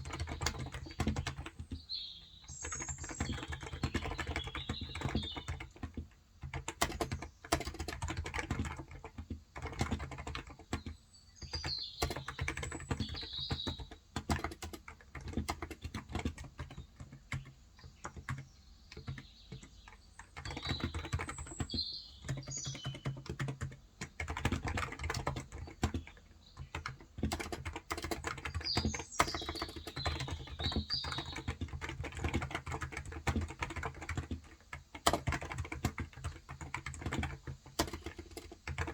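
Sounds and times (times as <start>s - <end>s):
birds chirping: 0.0s - 5.8s, 10.6s - 14.6s, 15.2s - 34.3s
keyboard typing: 0.0s - 38.9s.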